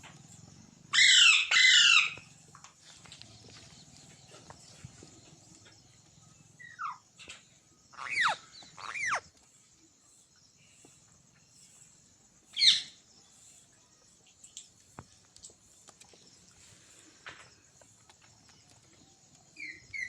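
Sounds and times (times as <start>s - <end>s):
parrot harsh screech: 8.0s - 9.2s
parrot whistling: 8.0s - 9.2s.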